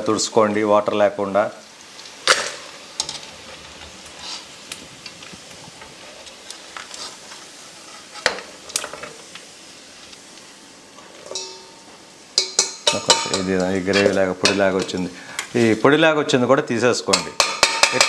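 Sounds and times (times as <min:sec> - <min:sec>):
chicken sizzling in hot oil: 0:00.0 - 0:16.4, 0:17.0 - 0:18.0
metal spoon scraping a pan: 0:02.0 - 0:04.7, 0:05.9 - 0:09.2, 0:11.0 - 0:11.8, 0:12.4 - 0:15.8, 0:17.1 - 0:18.0.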